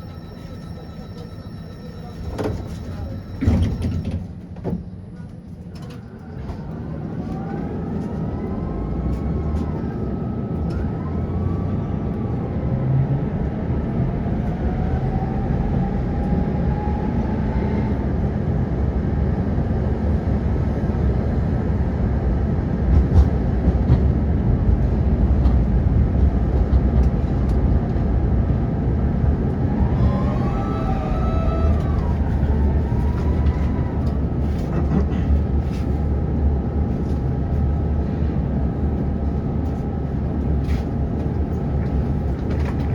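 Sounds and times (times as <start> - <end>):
tram rumbling on rails: 0.0 - 42.9
traction motors whining: 29.2 - 34.7.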